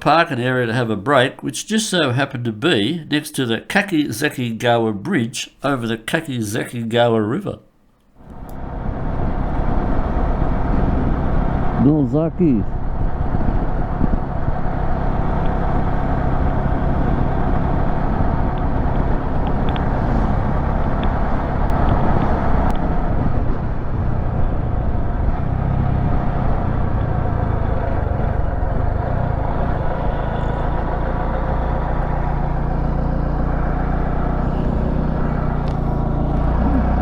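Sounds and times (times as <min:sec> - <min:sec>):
vehicle engine hum: 0:00.0 - 0:37.0
road and wind noise: 0:08.2 - 0:37.0.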